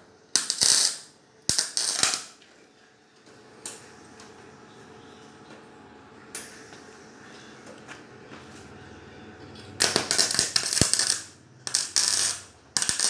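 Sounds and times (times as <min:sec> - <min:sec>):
welder arc crackling: 0:00.4 - 0:02.4, 0:09.8 - 0:13.0.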